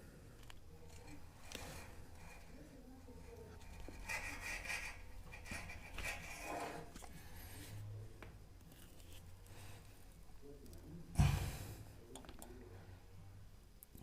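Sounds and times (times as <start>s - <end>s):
plastic pipe scraping on metal: 3.6s - 7.1s.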